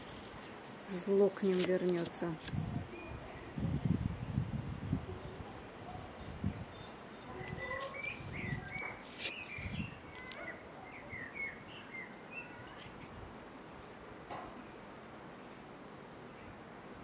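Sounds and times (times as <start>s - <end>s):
wind gusts on microphone: 0.0s - 11.8s
small birds chirping: 0.0s - 17.0s.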